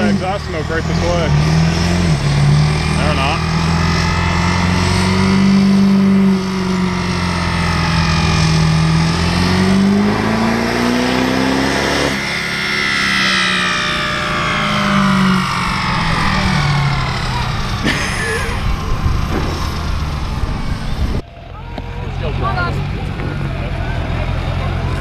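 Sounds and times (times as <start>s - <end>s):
high whine winding down: 0.0s - 23.7s
diesel truck engine under load: 0.0s - 25.0s.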